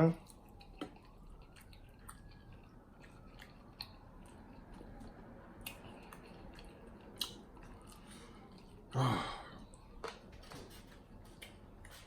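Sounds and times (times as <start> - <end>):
chewing chicken wings: 0.2 - 9.0.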